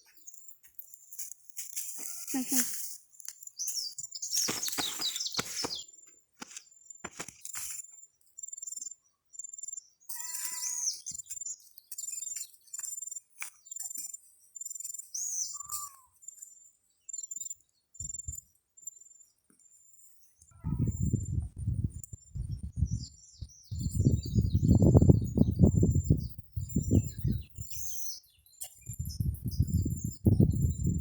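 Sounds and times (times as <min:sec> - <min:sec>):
rustling noise: 0:04.2 - 0:08.0.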